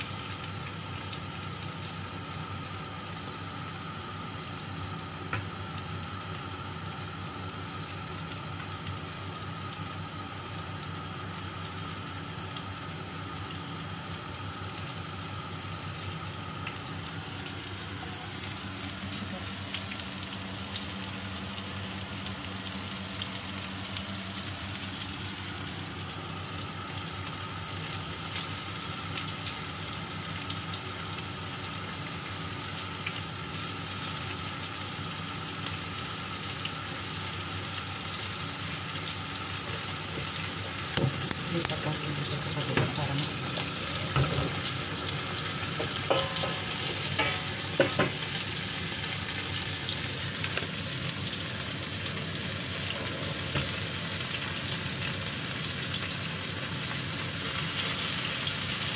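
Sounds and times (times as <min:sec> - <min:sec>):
chicken sizzling in a pan: 0:00.0 - 0:58.9
spatula knocking and scraping pan: 0:45.8 - 0:48.2.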